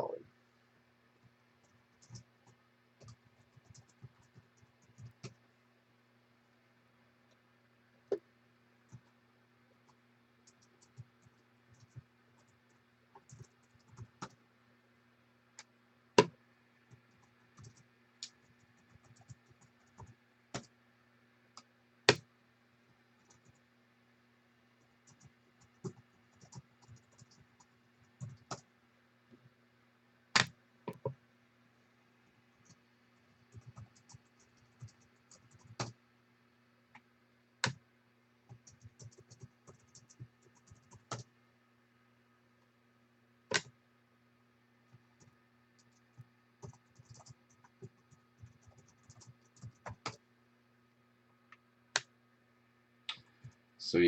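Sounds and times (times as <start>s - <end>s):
typing on computer keyboard: 1.6s - 5.4s, 9.9s - 14.4s, 16.9s - 20.7s, 23.2s - 23.6s, 24.8s - 28.6s, 33.4s - 36.0s, 38.5s - 41.3s, 45.2s - 50.2s.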